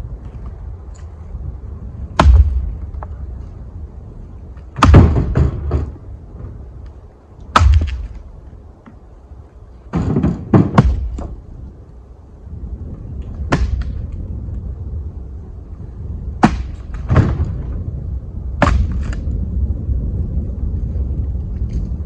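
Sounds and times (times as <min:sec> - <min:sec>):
low wind rumble: 0:00.0 - 0:22.0
heavy wooden thuds: 0:02.1 - 0:03.2, 0:04.7 - 0:06.7, 0:07.5 - 0:08.3, 0:09.9 - 0:11.4, 0:16.4 - 0:17.8, 0:18.6 - 0:19.2.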